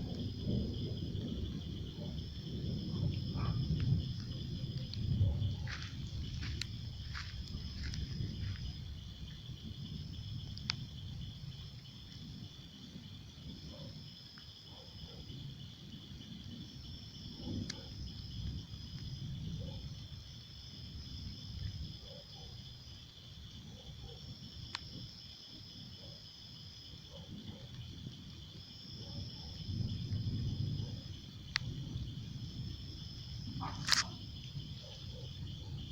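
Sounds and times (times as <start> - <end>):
low rumble: 0.0 - 11.7
higher insect trill: 0.0 - 35.9
insects trilling: 0.0 - 35.9.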